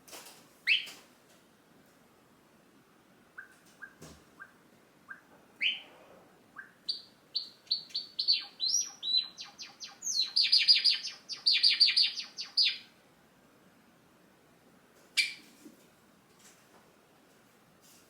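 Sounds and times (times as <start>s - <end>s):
sparrow singing: 3.4s - 5.9s, 6.6s - 12.9s.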